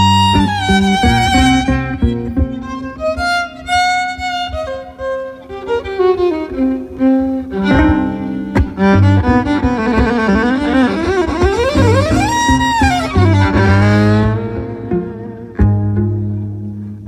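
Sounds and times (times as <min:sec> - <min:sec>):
violin melody: 0:00.0 - 0:17.0.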